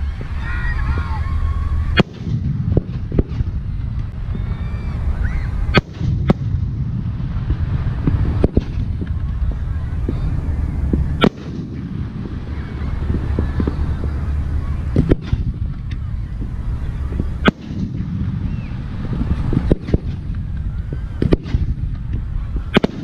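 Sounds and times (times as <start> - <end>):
low rumble: 0.0 - 23.0
firework shells bursting: 5.6 - 23.0.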